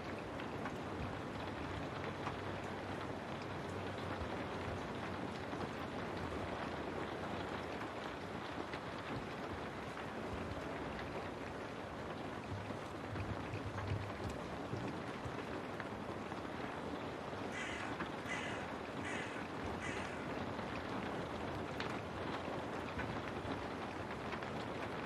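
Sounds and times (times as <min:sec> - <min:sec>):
steady rain: 0:00.0 - 0:25.0
crow cawing: 0:17.5 - 0:20.4.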